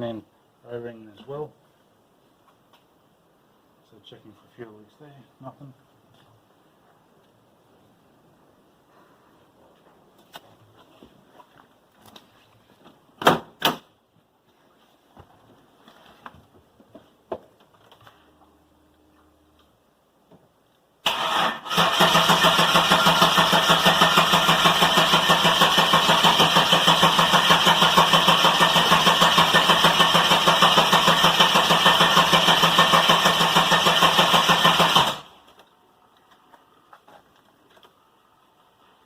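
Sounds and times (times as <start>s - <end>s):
car engine cranking: 21.0s - 35.4s.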